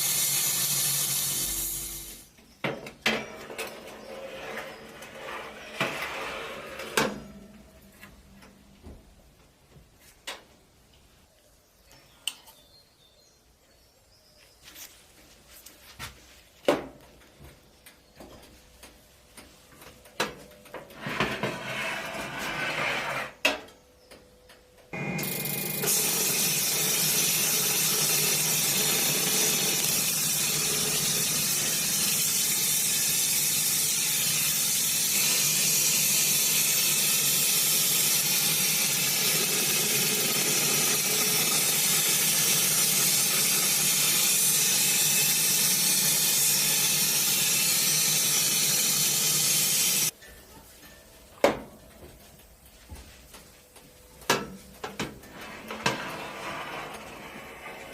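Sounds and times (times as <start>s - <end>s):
steady spraying hiss: 0.0s - 2.4s, 26.0s - 50.1s.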